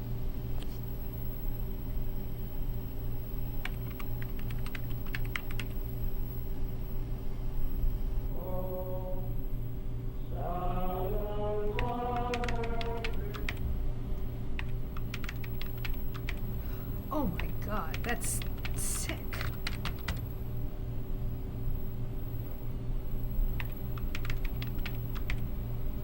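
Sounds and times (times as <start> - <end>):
steady low hum: 0.0 - 26.0
keyboard typing clicks: 3.6 - 5.8, 11.8 - 13.6, 14.6 - 16.4, 17.4 - 20.2, 23.6 - 25.4
wordless vocal sliding in pitch: 16.7 - 19.4.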